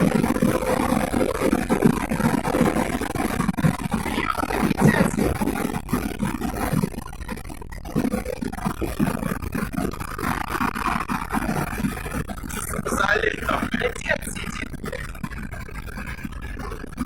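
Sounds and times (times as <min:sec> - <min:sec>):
road noise inside car: 0:00.0 - 0:07.1.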